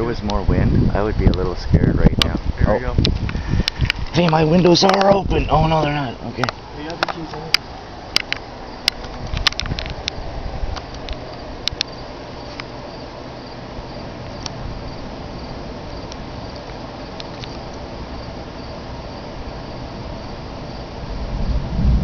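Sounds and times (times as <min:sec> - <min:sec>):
crickets chirping: 0:00.0 - 0:22.0
low thunder rumble: 0:00.0 - 0:22.0
steady rain: 0:00.0 - 0:22.0
sharp drop ticks: 0:06.3 - 0:12.7, 0:16.0 - 0:17.9.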